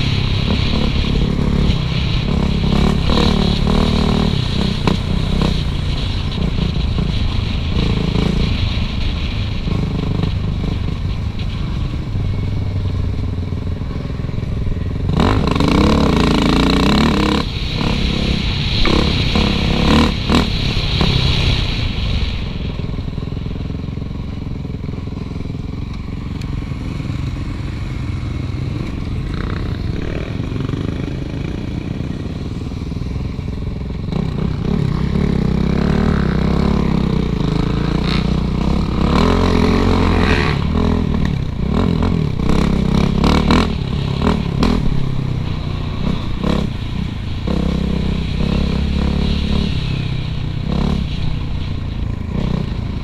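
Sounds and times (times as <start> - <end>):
dirt bike engine revving: 0.0 - 8.8, 13.8 - 21.7, 26.5 - 33.0, 33.9 - 53.0
clatter and scraping from bike: 0.0 - 53.0.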